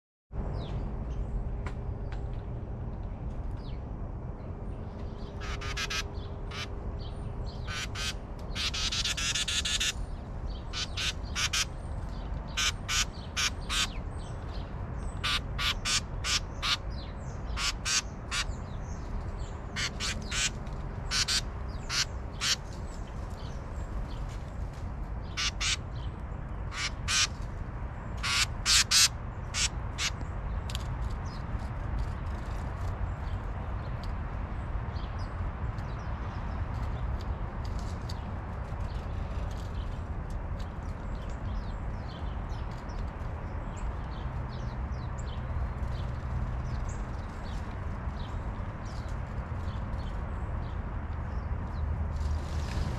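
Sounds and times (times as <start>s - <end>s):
birds giving harsh calls: 5.2s - 6.8s, 7.5s - 23.6s, 25.2s - 27.5s, 28.1s - 31.4s
bird chattering call: 5.4s - 6.7s, 7.7s - 10.0s, 10.7s - 11.7s, 12.6s - 14.0s, 15.2s - 16.8s, 21.1s - 22.6s, 25.4s - 25.8s, 28.2s - 30.2s.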